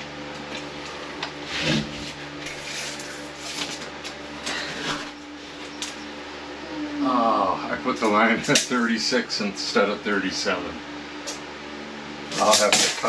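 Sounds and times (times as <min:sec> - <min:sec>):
low hum: 0:00.0 - 0:13.0
rustling and scraping handling: 0:00.4 - 0:06.1.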